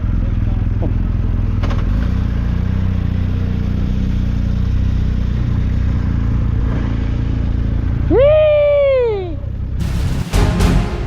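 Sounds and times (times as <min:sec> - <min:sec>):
motorcycle engine running: 0:00.0 - 0:08.1
wind and road noise: 0:00.9 - 0:08.6.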